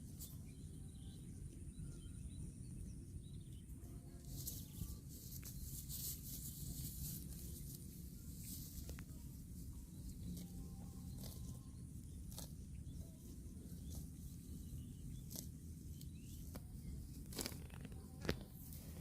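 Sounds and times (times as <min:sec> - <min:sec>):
cow chewing grass: 0:04.2 - 0:19.0.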